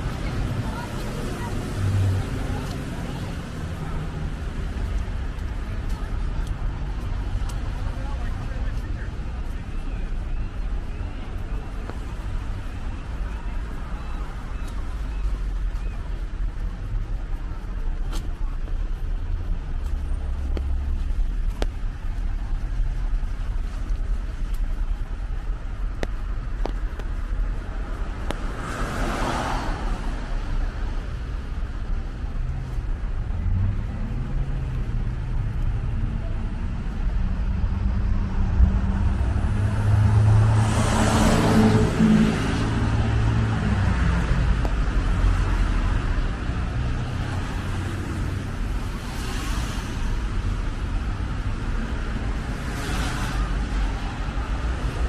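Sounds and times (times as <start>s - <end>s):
vehicle engine rumble: 0.0s - 55.0s
cars swishing past: 27.0s - 55.0s.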